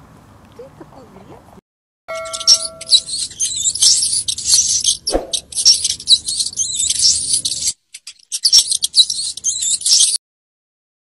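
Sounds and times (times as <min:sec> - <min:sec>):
rats squeaking: 0:02.1 - 0:10.2.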